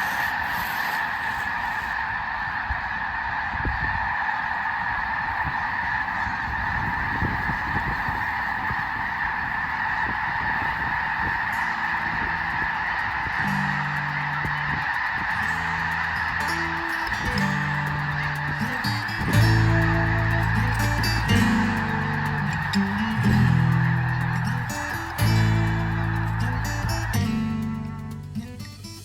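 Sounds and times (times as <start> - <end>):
flock of geese calling: 0.0 - 28.2
faint music: 11.5 - 29.0.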